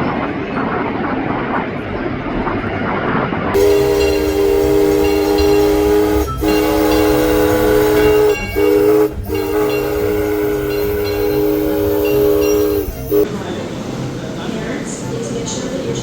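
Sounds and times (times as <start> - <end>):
train chime whistle blasts: 3.6 - 13.3.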